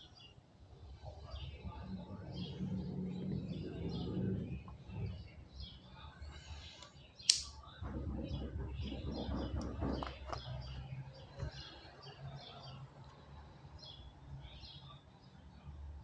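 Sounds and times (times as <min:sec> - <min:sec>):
sharp click: 0:07.3 - 0:07.6.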